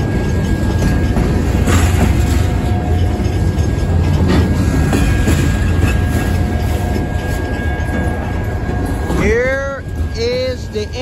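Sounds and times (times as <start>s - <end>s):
freight car clanks: 0.0s - 10.1s
steel wheels rumbling on rail: 0.0s - 11.0s
thin high tone: 5.1s - 11.0s.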